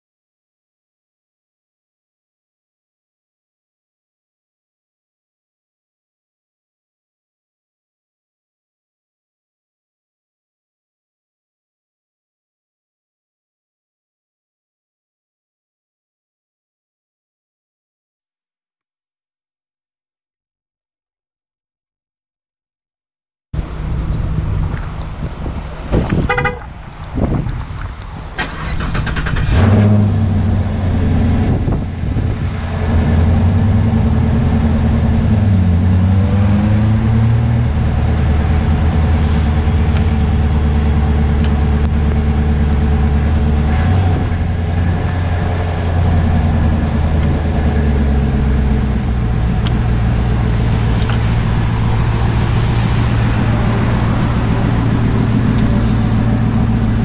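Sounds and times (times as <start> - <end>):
car engine starting and idling: 23.6 - 57.0.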